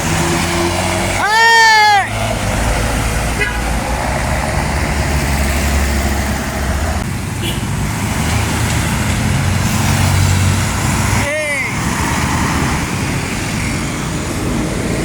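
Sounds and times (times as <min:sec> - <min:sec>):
diesel truck engine running: 0:00.0 - 0:15.0
road traffic: 0:00.0 - 0:15.0.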